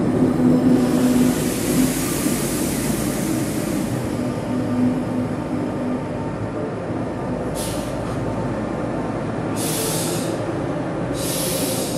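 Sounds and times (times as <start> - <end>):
electric train humming: 0.0 - 11.9
air release hisses: 0.8 - 4.0, 7.6 - 8.0, 9.6 - 10.4, 11.2 - 11.9.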